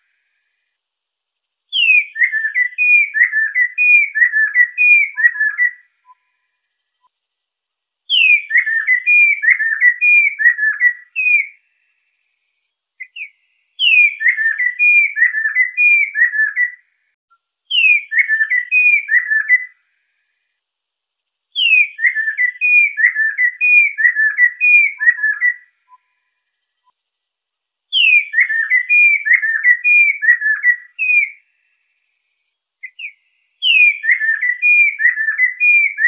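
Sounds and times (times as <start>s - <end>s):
laughingthrush whistled song: 1.7s - 6.6s, 8.1s - 11.6s, 13.0s - 16.9s, 17.7s - 19.8s, 21.6s - 26.9s, 27.9s - 31.4s, 32.8s - 36.0s.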